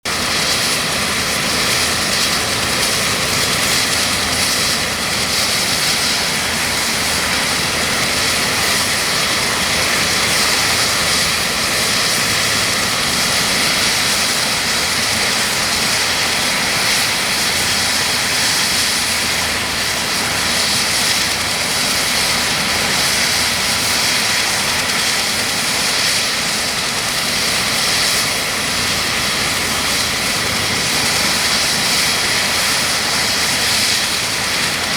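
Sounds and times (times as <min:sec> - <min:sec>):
helicopter turbine whine: 0:00.0 - 0:34.9.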